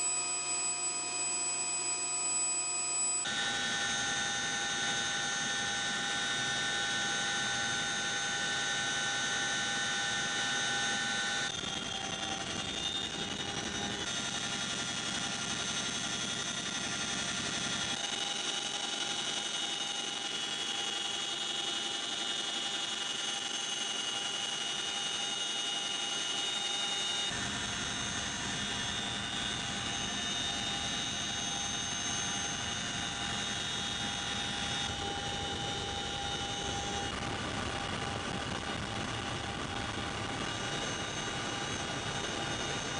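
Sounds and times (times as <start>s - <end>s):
helicopter turbine whine: 3.2s - 42.9s
helicopter rotor rumble: 3.3s - 42.9s.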